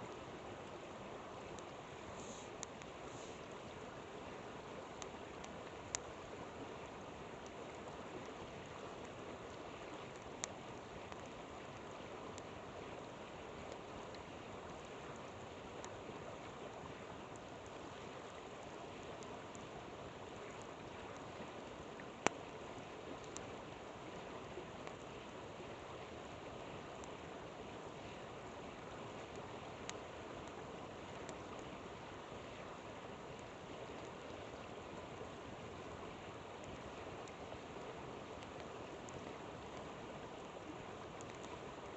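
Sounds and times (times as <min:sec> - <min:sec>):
campfire crackling pops: 0:04.9 - 0:06.1, 0:07.4 - 0:12.5, 0:22.2 - 0:22.4, 0:29.2 - 0:31.7.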